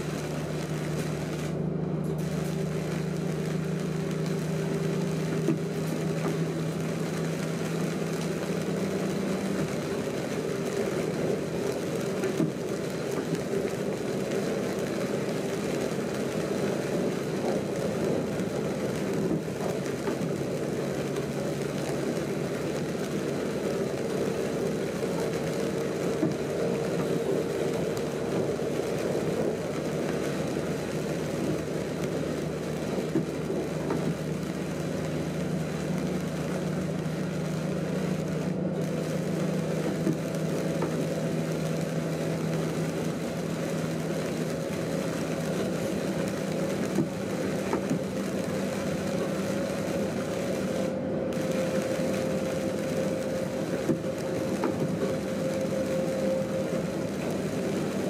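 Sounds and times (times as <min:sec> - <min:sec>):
train rumbling at speed: 0:00.0 - 0:58.0.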